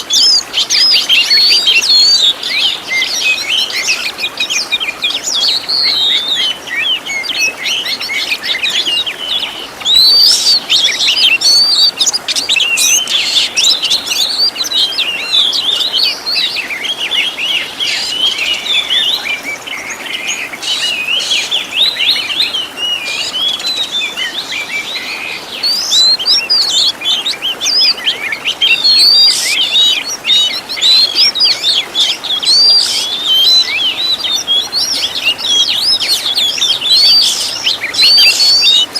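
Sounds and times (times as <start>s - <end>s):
bird singing varied song: 0.0s - 38.9s.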